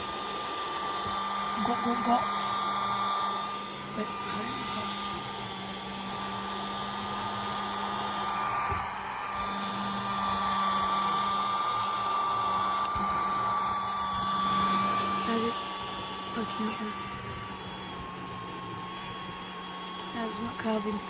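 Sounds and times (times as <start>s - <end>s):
mini vacuum cleaner whine: 0.0s - 21.0s.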